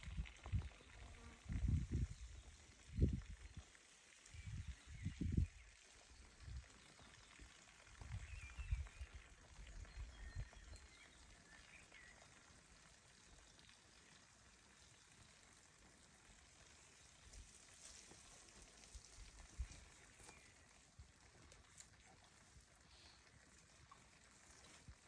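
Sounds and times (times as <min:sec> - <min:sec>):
wind rumble on microphone: 0:00.0 - 0:03.7, 0:04.3 - 0:05.7, 0:08.0 - 0:10.9.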